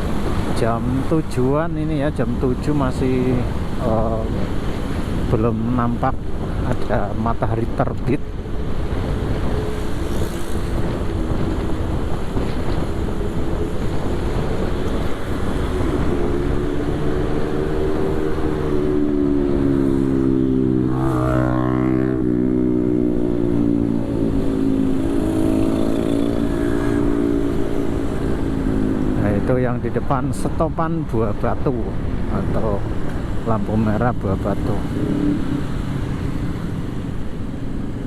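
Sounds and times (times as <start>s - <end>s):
road and wind rush: 0.0s - 38.0s
motorcycle engine: 15.1s - 29.2s.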